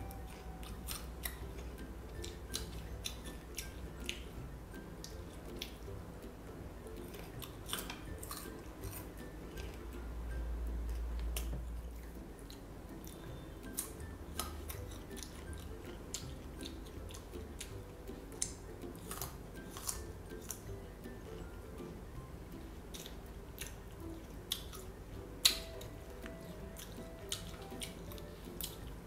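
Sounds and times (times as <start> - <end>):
chewing and biting: 0.0 - 6.0, 7.0 - 9.8, 10.8 - 21.6, 22.9 - 29.0.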